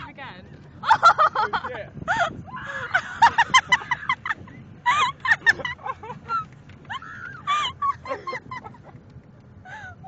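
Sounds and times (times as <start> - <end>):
people laughing and squealing: 0.8 - 8.9.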